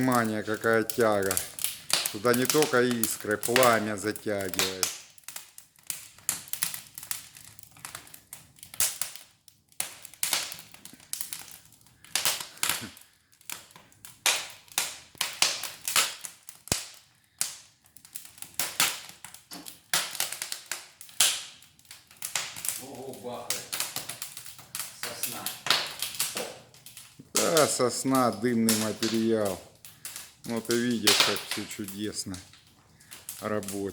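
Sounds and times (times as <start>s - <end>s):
logs crackling and popping: 0.0s - 33.9s
fire loud bangs: 22.2s - 32.2s.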